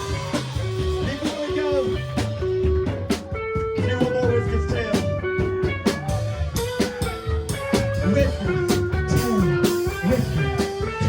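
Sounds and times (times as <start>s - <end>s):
bass guitar: 0.0s - 11.0s
drum kit steady beat: 0.0s - 11.0s
electric guitar bending notes: 0.0s - 11.0s.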